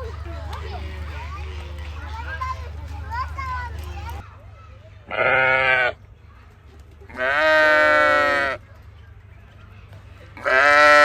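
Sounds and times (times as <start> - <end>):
sheep bleating: 7.1 - 8.6, 10.4 - 11.0.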